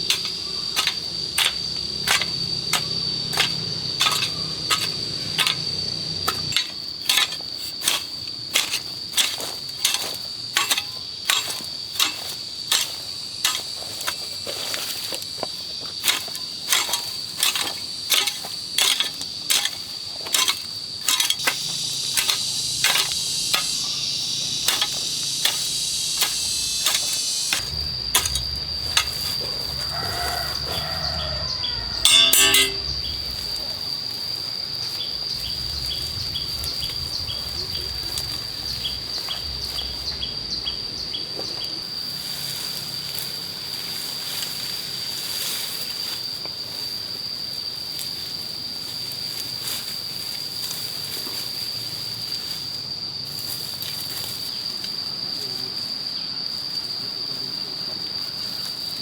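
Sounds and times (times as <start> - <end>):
high-pitched insect drone: 0.0 - 46.9.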